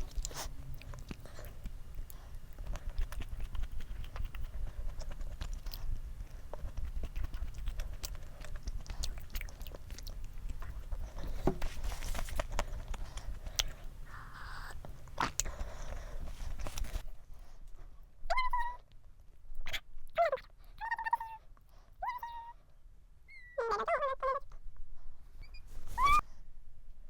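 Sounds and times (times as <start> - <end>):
chewing frozen snack: 0.0 - 17.0.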